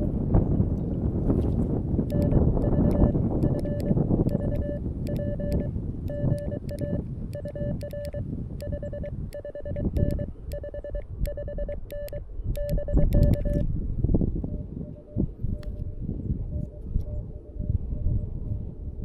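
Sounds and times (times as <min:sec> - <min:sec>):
wind rumble: 0:00.0 - 0:19.0
morse code tone: 0:02.1 - 0:13.6.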